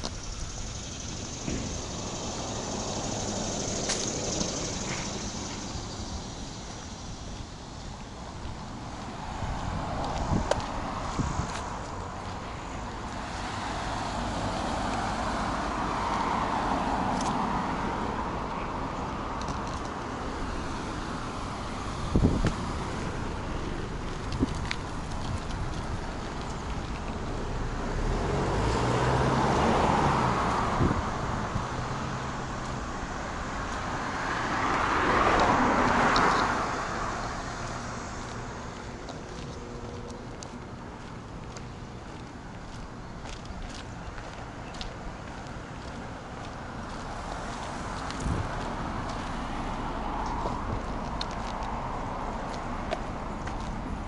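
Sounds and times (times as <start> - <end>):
cars driving past: 0.0 - 54.0
low engine hum: 0.0 - 54.0
car driving past: 26.8 - 40.4.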